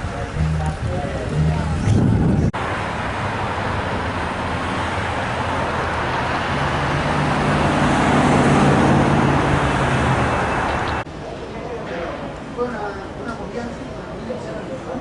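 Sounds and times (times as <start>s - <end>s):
low engine hum: 0.0s - 2.5s
passing vehicles rushing: 0.0s - 11.1s.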